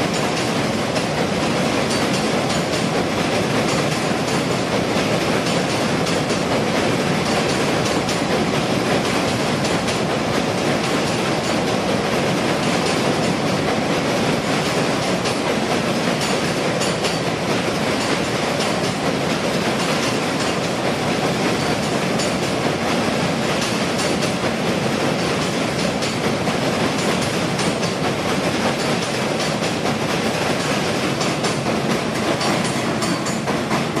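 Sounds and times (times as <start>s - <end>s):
passenger train running at speed: 0.0s - 34.0s
faint rail clicks: 1.8s - 6.6s, 14.4s - 34.0s.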